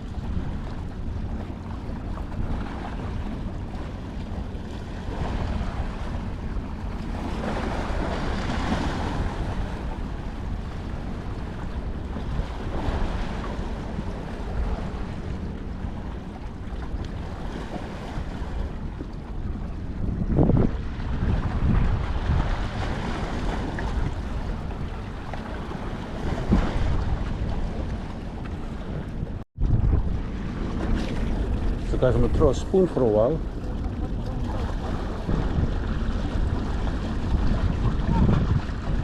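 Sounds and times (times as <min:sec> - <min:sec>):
harbour water washing: 0:00.0 - 0:39.0
wind buffeting microphone: 0:00.0 - 0:39.0.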